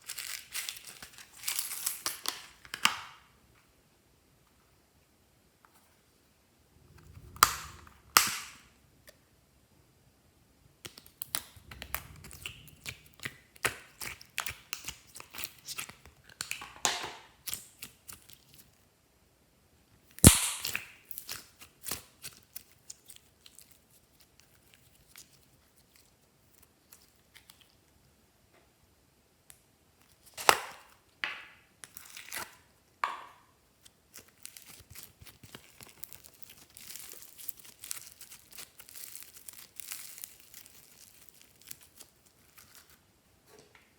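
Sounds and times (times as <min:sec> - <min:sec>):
slime squishing by hand: 0:10.8 - 0:16.1, 0:33.7 - 0:43.0.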